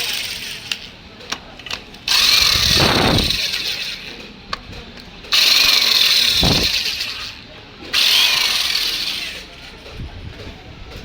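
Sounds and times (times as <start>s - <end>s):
power drill whirring: 0.0s - 0.8s, 2.1s - 4.2s, 5.3s - 9.7s.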